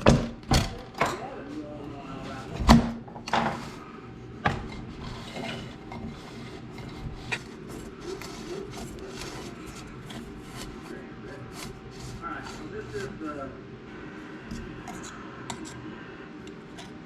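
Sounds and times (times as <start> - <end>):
recoil starter rubbing and scraping: 3.4 - 13.5, 14.5 - 17.0.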